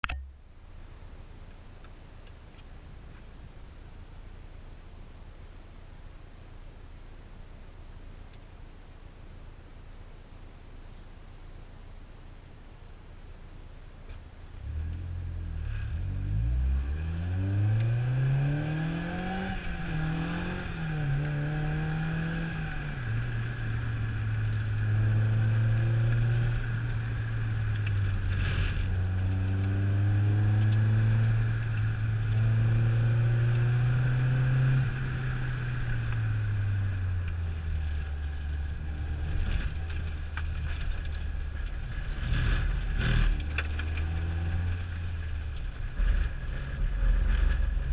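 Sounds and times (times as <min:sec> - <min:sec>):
vehicle engine revving: 0:14.6 - 0:47.9.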